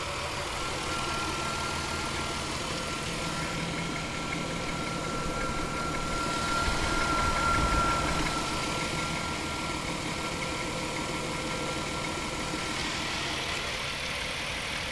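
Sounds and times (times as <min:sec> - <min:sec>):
car engine idling with knocking: 0:00.0 - 0:14.9
steady high whine: 0:00.0 - 0:14.9.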